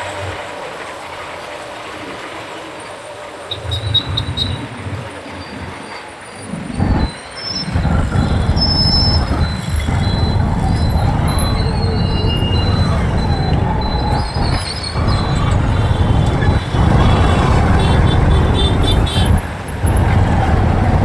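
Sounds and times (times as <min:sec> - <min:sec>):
traffic sounds: 0:00.0 - 0:21.0
motorcycle engine rumble: 0:06.8 - 0:21.0.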